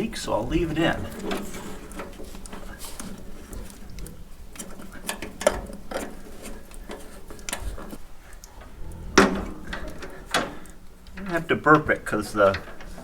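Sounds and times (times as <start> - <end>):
small metal clicks and taps: 1.2 - 11.4, 12.4 - 13.0
sharp knocks: 8.8 - 10.6.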